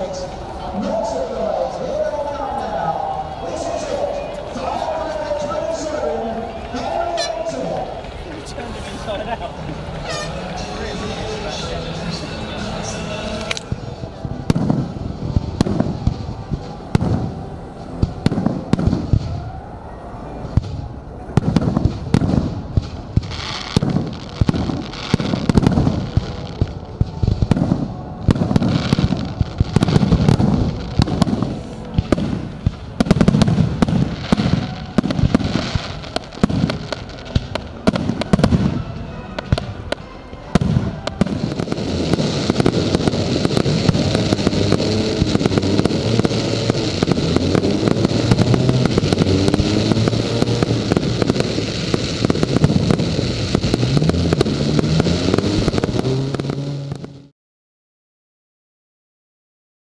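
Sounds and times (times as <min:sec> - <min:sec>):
fireworks bangs and crackles: 0:00.0 - 0:57.3
deep fireworks booms: 0:09.1 - 0:19.6, 0:20.4 - 0:57.3.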